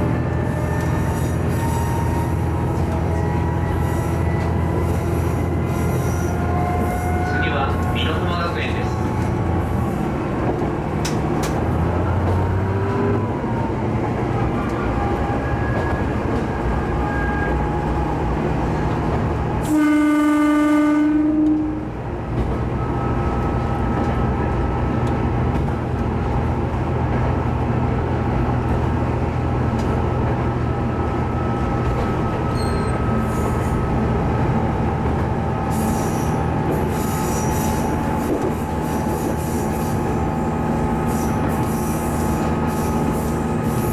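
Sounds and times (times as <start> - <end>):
diesel railcar running: 0.0 - 43.9
train horn: 6.4 - 8.2, 19.6 - 21.9
wheel squeals: 32.5 - 33.6, 35.7 - 38.1.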